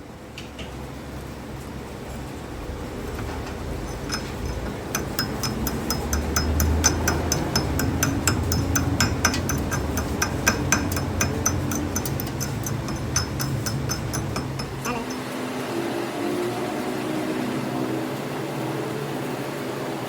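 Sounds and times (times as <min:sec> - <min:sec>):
low machine hum: 0:00.0 - 0:15.6
metal-on-metal clinks: 0:03.2 - 0:15.4.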